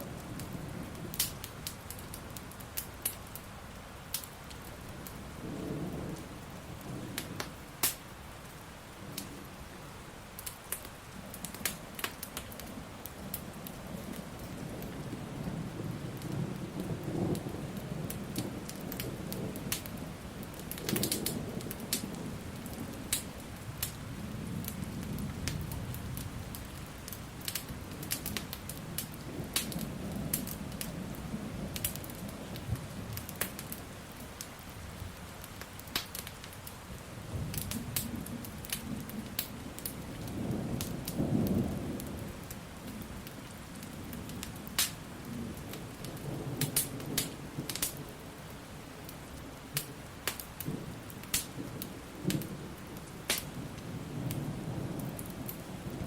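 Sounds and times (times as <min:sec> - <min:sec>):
steady rain: 0:00.0 - 0:56.0
wood fire crackling: 0:00.0 - 0:56.0
rolling thunder: 0:13.9 - 0:33.2, 0:37.2 - 0:47.9, 0:50.6 - 0:56.0.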